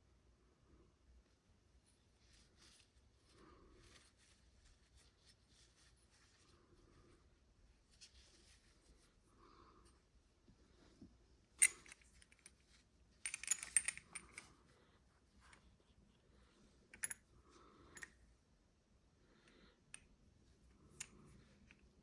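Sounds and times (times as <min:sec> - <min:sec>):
pistol parts clicking and rattling: 0:11.6 - 0:12.6, 0:13.2 - 0:14.6.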